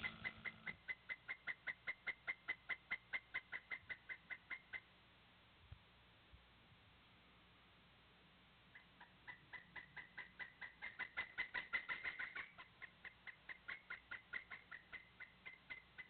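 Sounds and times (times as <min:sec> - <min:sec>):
woodpecker calling: 0:00.0 - 0:04.9, 0:08.7 - 0:16.0.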